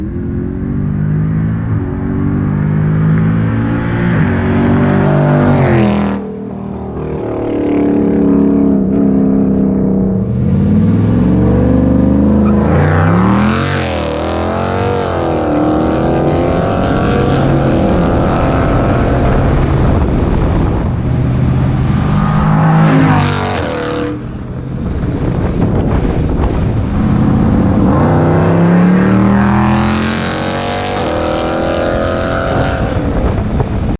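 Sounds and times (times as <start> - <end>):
car engine accelerating hard: 0.0 - 33.9.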